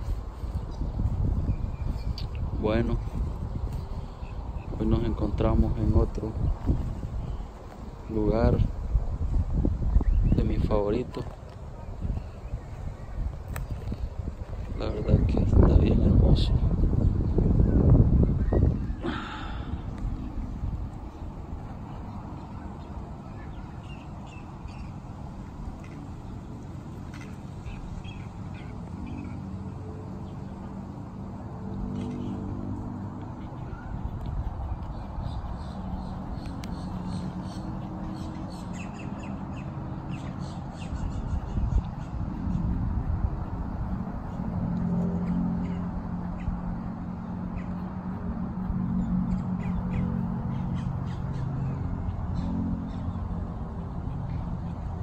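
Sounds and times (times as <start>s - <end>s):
small birds chirping: 0.0s - 42.8s, 45.2s - 55.0s
wind on the microphone: 0.0s - 55.0s
steady low hum: 11.1s - 55.0s.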